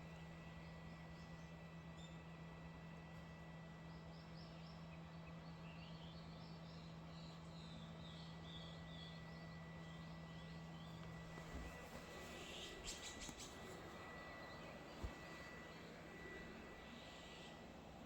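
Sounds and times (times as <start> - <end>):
low steady hum: 0.0 - 18.0
small birds chirping: 3.9 - 17.8.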